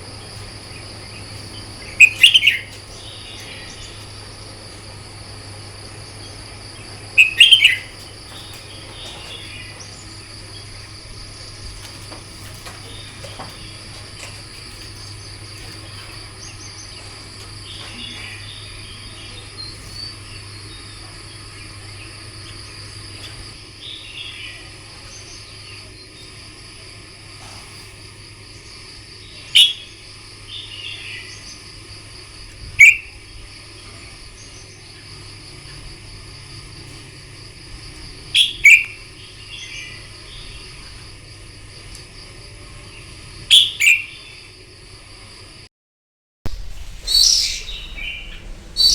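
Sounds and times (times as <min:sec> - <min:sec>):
sharp bird calls: 0:00.0 - 0:21.0, 0:29.3 - 0:31.9, 0:32.6 - 0:35.9, 0:37.5 - 0:41.0, 0:43.5 - 0:44.5, 0:46.7 - 0:48.9
bulbuls singing warbled phrases: 0:00.0 - 0:27.6, 0:28.6 - 0:44.5, 0:46.8 - 0:48.9
steady high-pitched whine: 0:00.0 - 0:45.7, 0:46.5 - 0:48.9.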